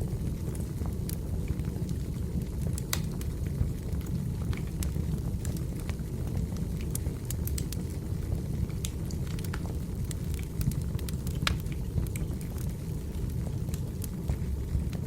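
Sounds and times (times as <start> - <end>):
burning logs rumble: 0.0 - 15.0
fire pops and snaps: 0.2 - 15.0.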